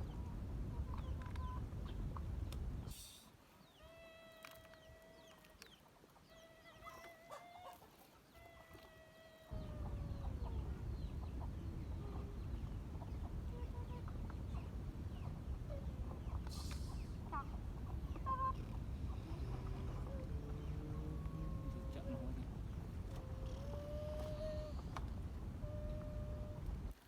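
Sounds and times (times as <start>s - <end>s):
steady low rumble: 0.0s - 2.9s, 9.5s - 26.9s
drawn-out animal calls: 8.5s - 26.9s.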